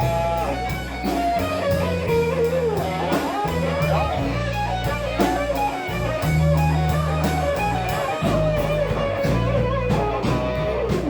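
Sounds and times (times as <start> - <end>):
bass notes: 0.0 - 11.0
drum beat: 0.0 - 11.0
electric guitar bending notes: 0.0 - 11.0.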